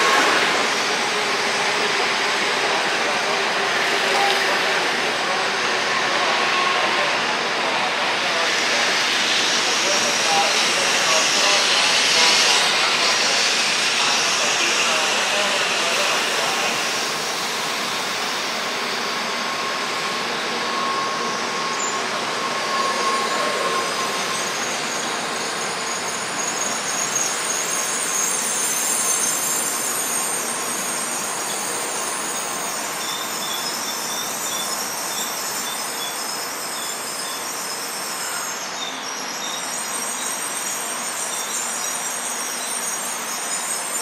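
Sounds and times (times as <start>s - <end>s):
train wheel and air rush: 0.0s - 44.0s
faint wheel squeal: 20.4s - 44.0s.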